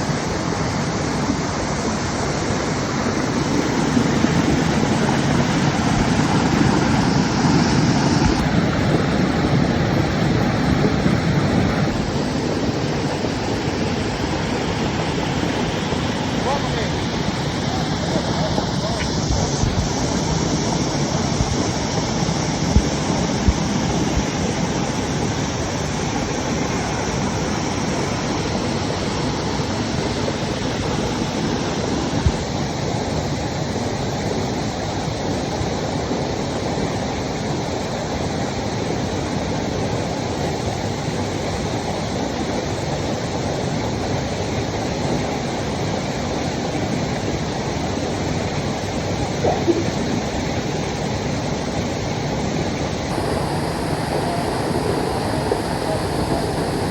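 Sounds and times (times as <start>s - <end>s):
waterfall rushing: 0.0s - 32.5s, 48.1s - 56.9s.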